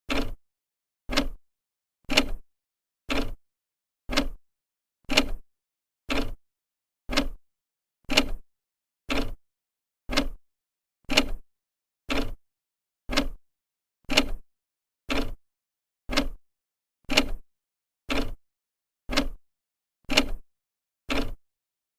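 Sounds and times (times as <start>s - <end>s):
clock ticking: 0.1s - 0.4s, 1.1s - 1.4s, 3.1s - 3.4s, 4.1s - 4.4s, 6.1s - 6.4s, 7.1s - 7.4s, 9.1s - 9.4s, 10.1s - 10.4s, 11.1s - 11.4s, 12.1s - 12.4s, 13.1s - 13.4s, 14.1s - 14.4s, 15.1s - 15.4s, 16.1s - 16.4s, 17.1s - 17.4s, 18.1s - 18.4s, 19.1s - 19.4s, 20.1s - 20.4s, 21.1s - 21.4s.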